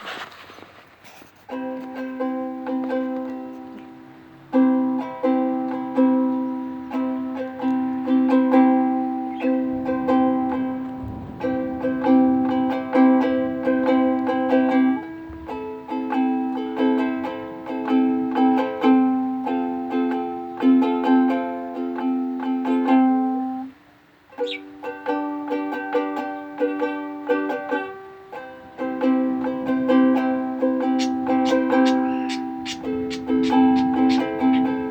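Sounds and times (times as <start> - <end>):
ukulele chords strummed: 1.4 - 34.9.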